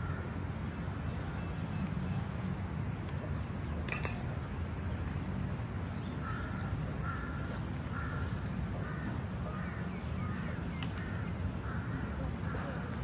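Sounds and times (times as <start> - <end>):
bird calls: 5.1 - 13.0.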